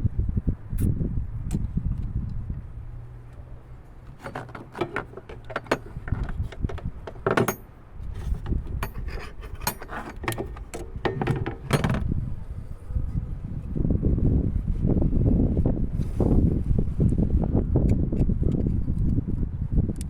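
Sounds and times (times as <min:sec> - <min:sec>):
low steady rumble: 0:00.0 - 0:20.0
clicks and knocks: 0:04.1 - 0:12.1
metallic clinks: 0:07.1 - 0:07.8.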